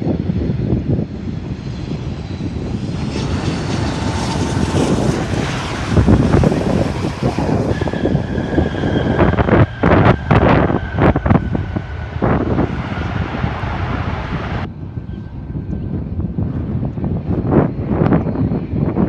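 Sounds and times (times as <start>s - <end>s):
airplane engines rumbling: 0.0s - 19.0s
steady engine whine: 0.0s - 19.0s.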